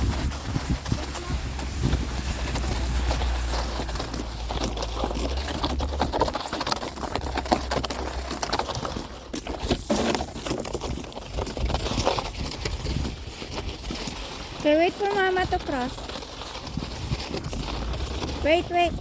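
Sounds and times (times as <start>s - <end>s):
low rumble: 0.0s - 8.5s
footsteps crunching through snow: 0.0s - 19.0s.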